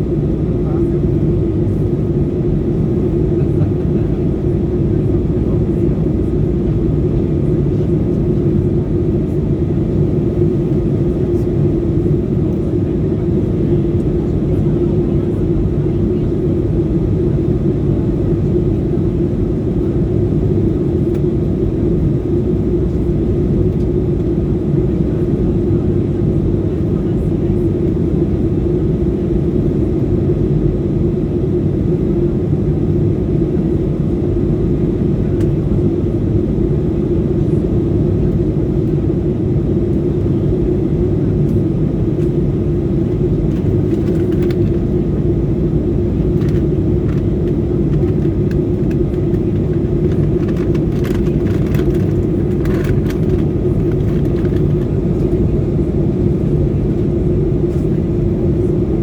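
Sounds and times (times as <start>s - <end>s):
airliner cabin engine drone: 0.0s - 59.0s.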